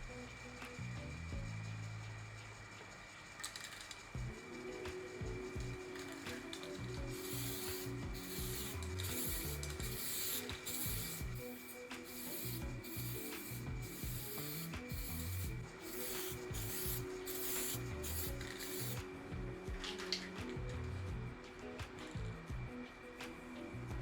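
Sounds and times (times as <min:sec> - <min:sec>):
background music: 0:00.0 - 0:24.0
sandpaper rubbing strokes: 0:05.8 - 0:19.1.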